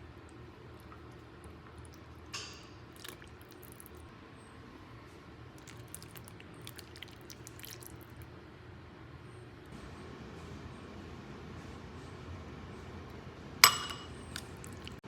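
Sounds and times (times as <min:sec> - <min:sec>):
low steady hum: 0:00.0 - 0:15.0
squishy food handling: 0:00.3 - 0:04.1, 0:05.5 - 0:08.3.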